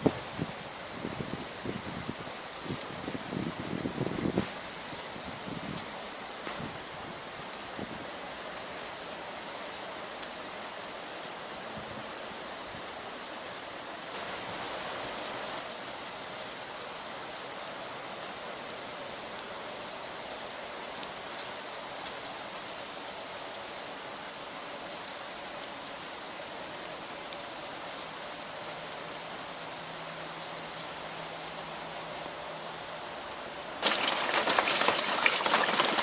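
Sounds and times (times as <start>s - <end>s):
rain falling: 0.0s - 36.0s.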